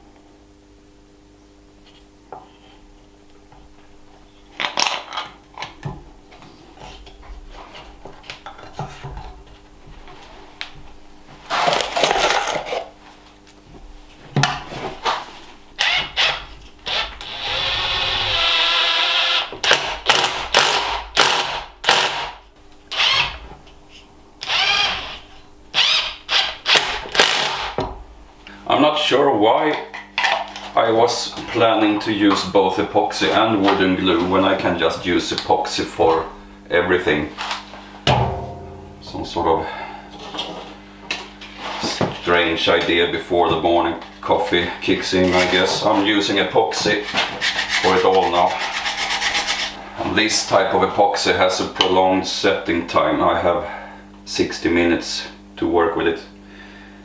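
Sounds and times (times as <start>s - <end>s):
power drill bursts: 15.8s - 23.4s, 24.4s - 25.2s, 25.8s - 27.8s.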